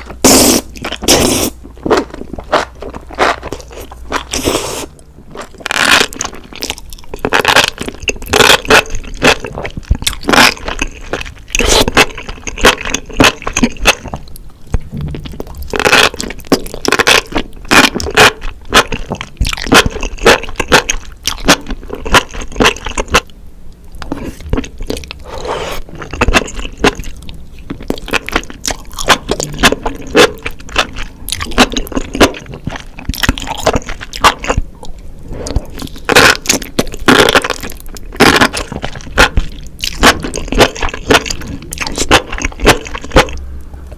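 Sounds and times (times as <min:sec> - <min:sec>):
mushrooms being bitten and chewed: 0:00.0 - 0:14.4, 0:15.0 - 0:23.3, 0:24.0 - 0:43.4.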